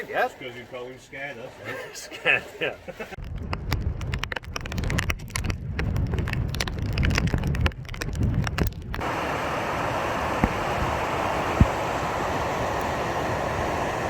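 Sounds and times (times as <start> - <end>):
gale-force wind roaring: 3.2 - 14.0
wind buffeting: 3.2 - 14.0.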